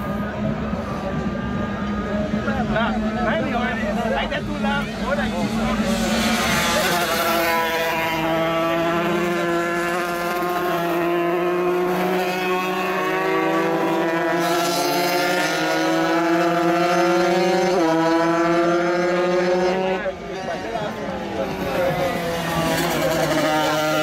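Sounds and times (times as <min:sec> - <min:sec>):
motocross bike engine revving: 0:04.4 - 0:20.1, 0:21.2 - 0:24.0.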